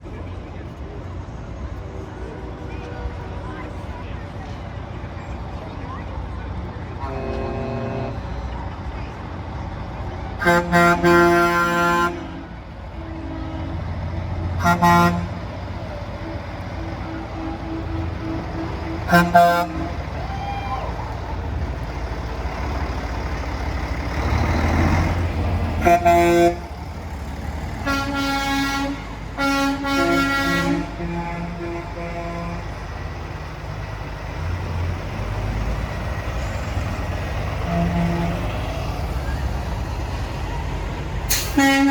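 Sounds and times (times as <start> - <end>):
truck engines rumbling: 0.0 - 41.9
truck air horn blasts: 7.0 - 8.3, 10.4 - 20.3, 24.2 - 33.2, 37.4 - 38.7, 41.3 - 41.9.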